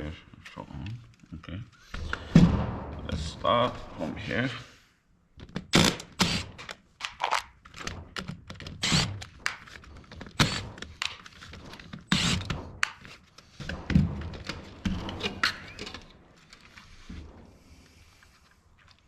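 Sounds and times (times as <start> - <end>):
screwdriver clicking and scraping: 5.8 - 16.9.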